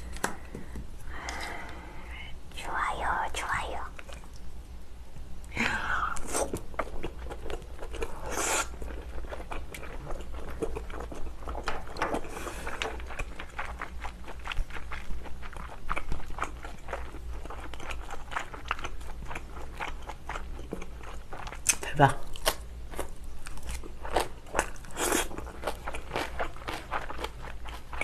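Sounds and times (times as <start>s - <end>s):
wet chewing and crunching: 6.3s - 28.0s.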